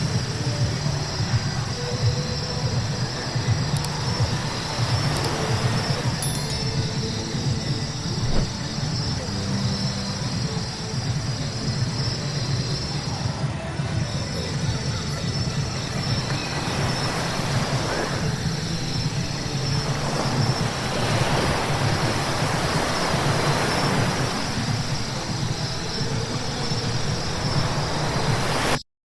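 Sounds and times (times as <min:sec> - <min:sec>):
road rumble: 0:02.1 - 0:10.2.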